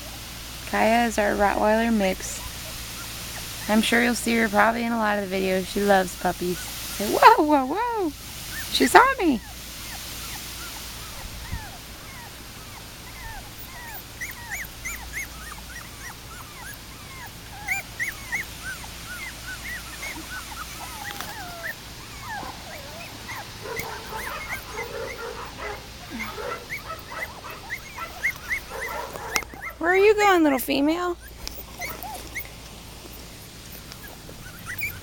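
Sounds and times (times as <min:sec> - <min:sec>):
puppies whimpering: 0:00.0 - 0:35.0.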